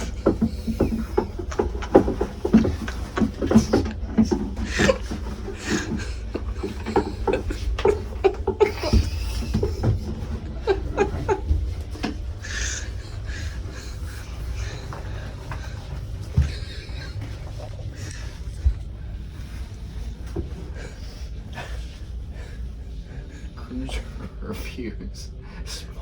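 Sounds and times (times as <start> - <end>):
people laughing and giggling: 0.0 - 18.8
steady low hum: 0.0 - 26.0.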